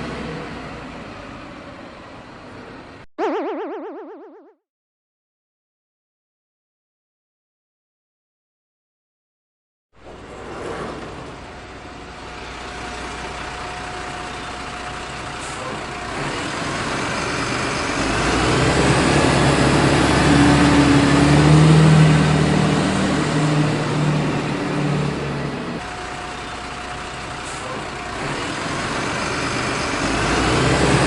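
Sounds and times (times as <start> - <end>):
large vehicle engine running: 10.1 - 31.0.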